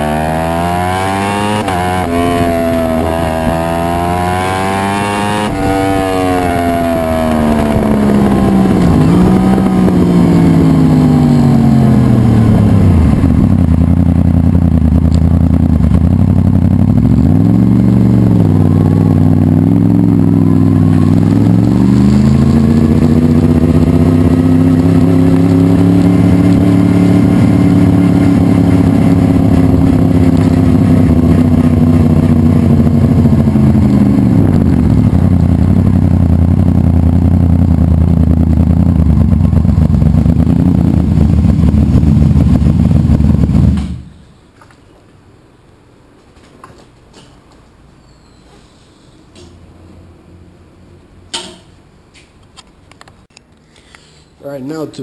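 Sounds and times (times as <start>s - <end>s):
motorcycle engine idling: 5.4s - 44.3s.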